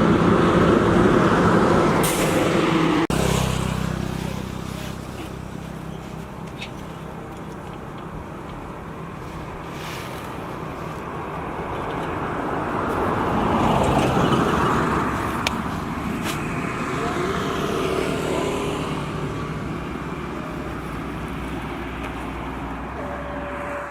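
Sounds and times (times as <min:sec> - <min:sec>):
tractor engine running: 0:00.0 - 0:23.9.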